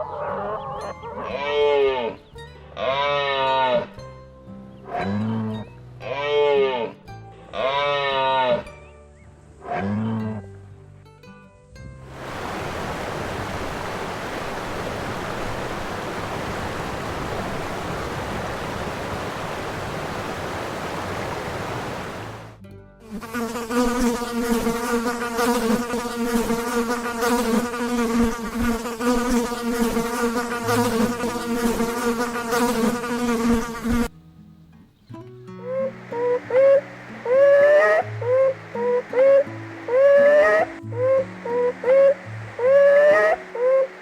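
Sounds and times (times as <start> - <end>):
steady hiss: 12.0 - 22.6, 35.6 - 44.0
flying insect buzzing: 23.1 - 34.1, 35.7 - 44.0.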